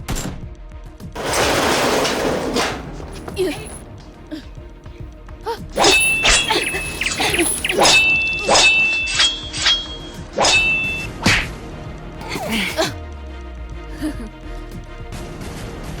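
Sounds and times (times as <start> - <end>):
sharp whacks and thuds: 10.4 - 11.6.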